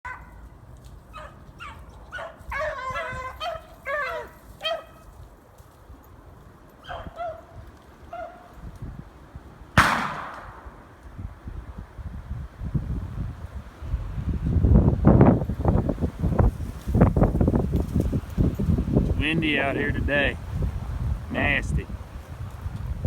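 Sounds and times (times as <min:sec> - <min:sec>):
dogs baying: 0:00.1 - 0:00.4, 0:01.1 - 0:05.0, 0:06.8 - 0:08.5
wind on microphone: 0:02.4 - 0:03.6, 0:06.3 - 0:23.0
loud sharp bang: 0:09.8 - 0:11.0.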